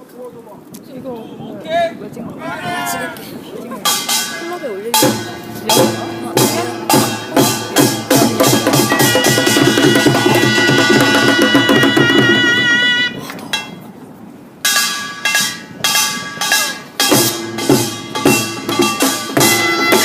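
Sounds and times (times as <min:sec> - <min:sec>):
drums and small gongs: 0:03.8 - 0:13.9, 0:14.6 - 0:20.0.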